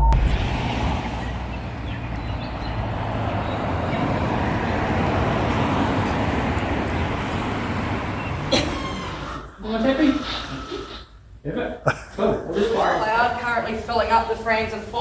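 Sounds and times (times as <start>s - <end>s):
vehicle interior engine rumble: 0.0s - 9.5s.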